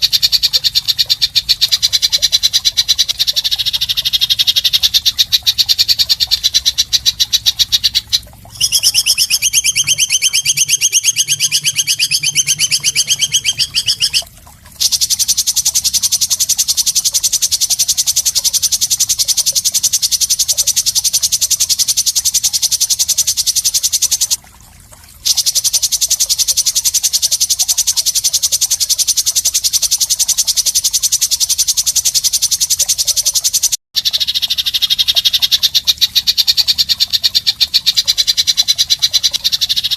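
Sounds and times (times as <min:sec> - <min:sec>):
harsh high-pitched bird calls: 0:00.0 - 0:14.2, 0:25.3 - 0:39.9.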